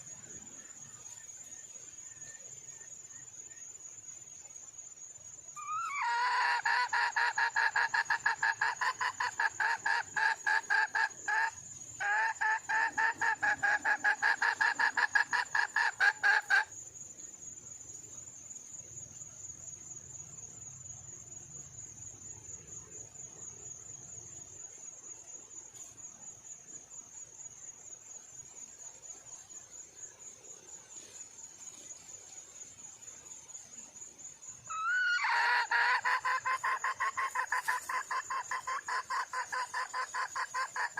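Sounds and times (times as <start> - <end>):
hen clucking rapidly: 5.6 - 16.7, 34.7 - 40.9.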